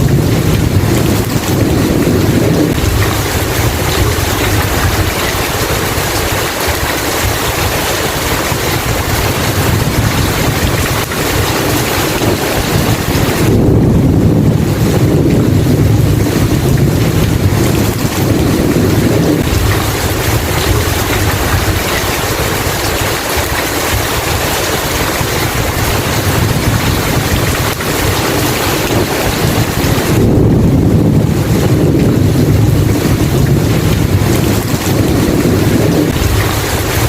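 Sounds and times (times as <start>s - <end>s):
deep thunder rumble: 0.0s - 37.0s
heavy rain: 0.0s - 37.0s.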